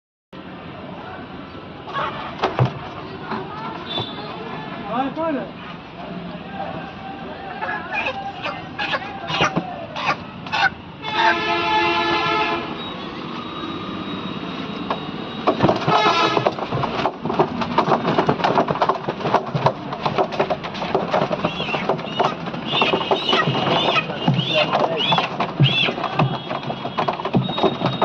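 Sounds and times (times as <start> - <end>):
fast clatter of knocks: 2.4 - 3.1, 14.9 - 28.0
horn blast: 11.0 - 12.8, 15.9 - 16.6.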